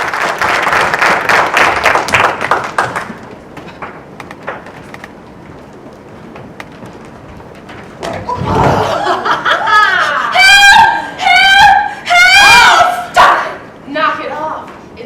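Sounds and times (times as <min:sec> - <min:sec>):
person's shrill cries: 0:10.3 - 0:13.5.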